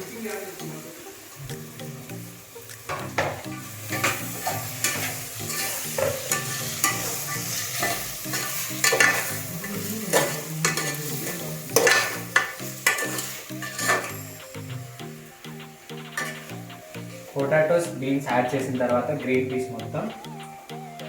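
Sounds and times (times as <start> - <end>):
vegetables sizzling in a pan: 0.0 - 20.9
spoon clinking against pan: 2.9 - 14.3, 16.2 - 16.6
spoon stirring and scraping: 3.2 - 14.3, 16.1 - 17.3.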